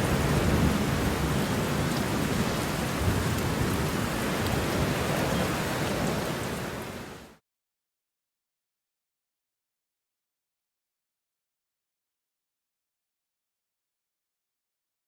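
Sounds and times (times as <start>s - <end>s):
heavy rain: 0.0s - 7.4s.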